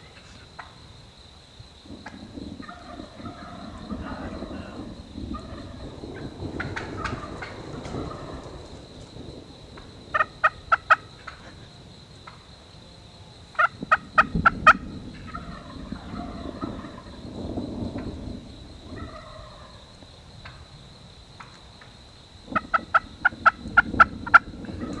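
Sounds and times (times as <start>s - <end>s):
faint turkey calling: 0.0s - 0.9s, 2.0s - 8.6s, 10.1s - 12.5s, 13.5s - 17.2s, 18.9s - 20.7s
low rumble: 1.9s - 11.8s
wild turkey yelps: 2.1s - 8.5s, 10.1s - 11.6s, 13.5s - 17.2s, 18.9s - 20.7s.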